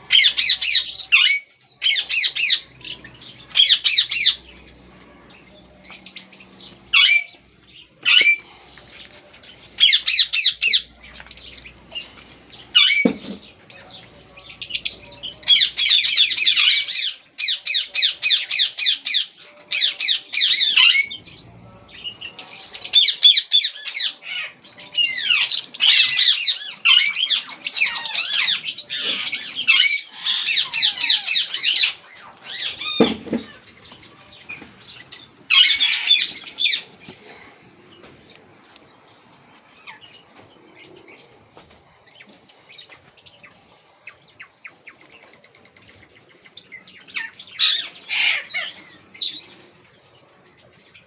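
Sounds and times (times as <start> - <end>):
parakeets squawking: 0.0 - 36.9, 47.1 - 49.4.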